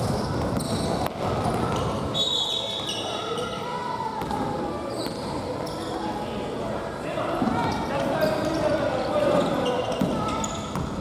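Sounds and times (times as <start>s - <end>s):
shoes squeaking on court: 0.0s - 3.6s, 7.6s - 11.0s.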